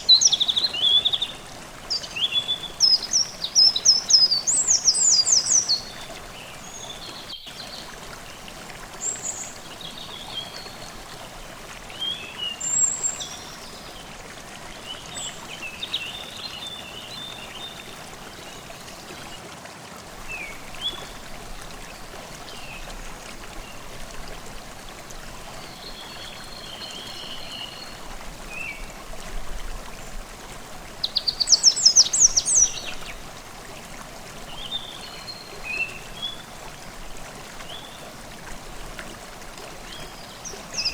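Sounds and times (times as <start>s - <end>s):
songbirds singing: 0.0s - 14.1s, 25.5s - 29.0s, 30.9s - 33.3s, 39.8s - 40.9s
stream running: 0.0s - 40.9s.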